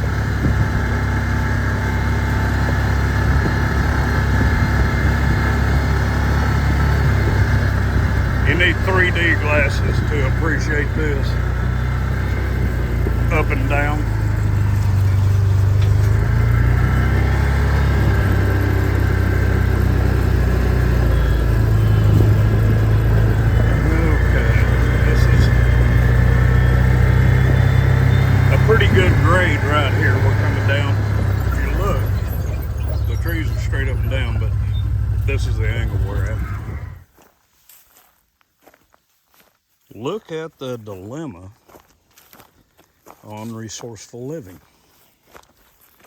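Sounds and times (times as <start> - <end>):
vehicle engine running: 0.0 - 37.1.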